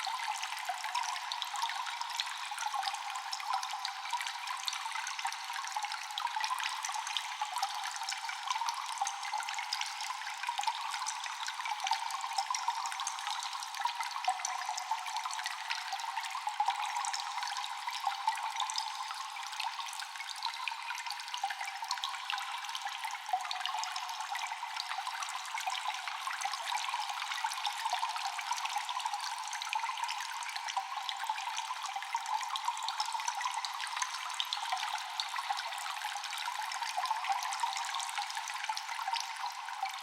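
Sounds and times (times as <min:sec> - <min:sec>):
water drops echoing in cave: 0:00.0 - 0:40.0
water trickling: 0:00.0 - 0:40.0.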